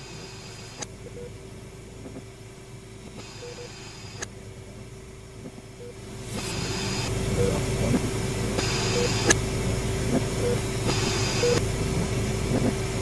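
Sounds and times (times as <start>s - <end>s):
faint hum: 0.0s - 13.0s
short electronic beeps: 3.3s - 3.8s, 7.4s - 7.6s, 8.8s - 9.3s, 10.4s - 11.6s
low rumbling drone: 4.4s - 13.0s
burst of hiss: 6.2s - 7.2s, 8.6s - 9.4s, 10.8s - 11.6s.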